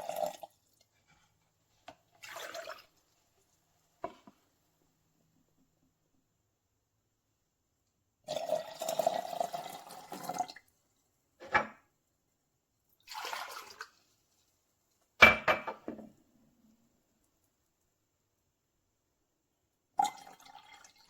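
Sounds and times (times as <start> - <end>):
coffee maker dripping and gurgling: 0.0 - 4.4, 8.1 - 11.1, 12.9 - 15.2, 19.9 - 21.0.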